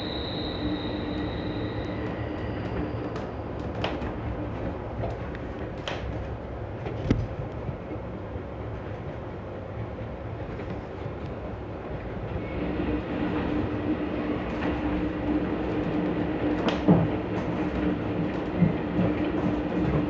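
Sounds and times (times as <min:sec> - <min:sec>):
train rumbling along track: 0:00.0 - 0:20.0.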